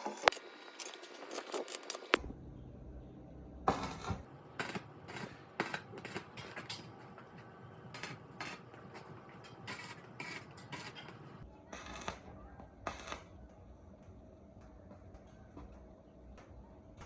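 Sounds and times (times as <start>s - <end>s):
metal scrape: 4.6s - 11.4s.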